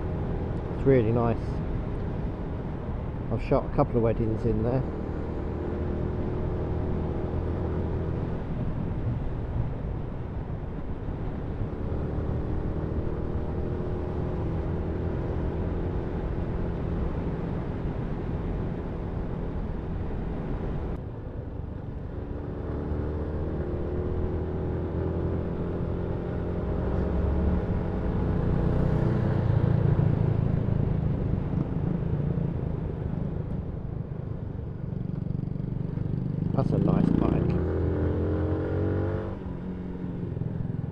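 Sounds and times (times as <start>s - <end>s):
motorcycle engine revving: 36.0s - 40.3s.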